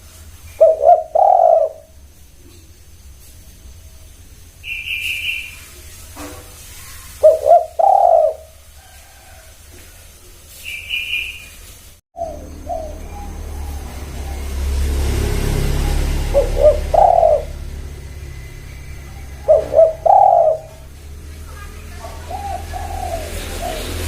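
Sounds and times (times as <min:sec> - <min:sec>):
dove cooing: 0:00.5 - 0:02.6, 0:06.8 - 0:09.9, 0:12.2 - 0:24.0
short high bird chirp: 0:04.6 - 0:05.6, 0:10.6 - 0:11.6.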